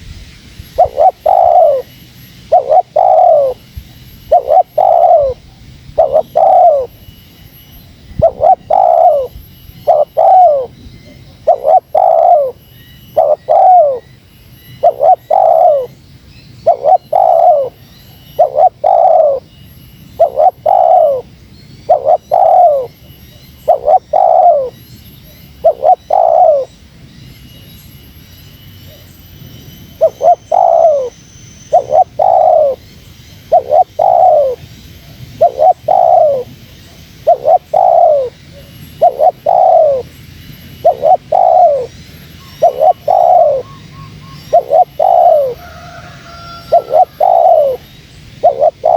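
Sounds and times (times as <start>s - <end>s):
dove cooing: 0.8s - 1.9s, 2.5s - 3.7s, 4.3s - 7.0s, 8.1s - 12.6s, 13.2s - 14.1s, 14.8s - 16.0s, 16.6s - 19.5s, 20.2s - 23.0s, 23.6s - 24.8s, 25.6s - 26.7s, 30.0s - 31.1s, 31.7s - 32.8s, 33.4s - 40.1s, 40.8s - 48.9s.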